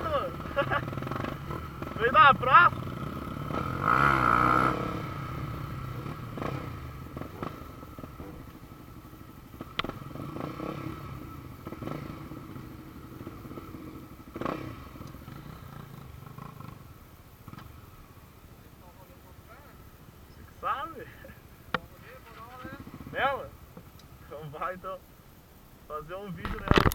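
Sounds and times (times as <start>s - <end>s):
motorcycle engine running: 0.0s - 25.6s
sharp clicks or knocks: 26.5s - 26.9s.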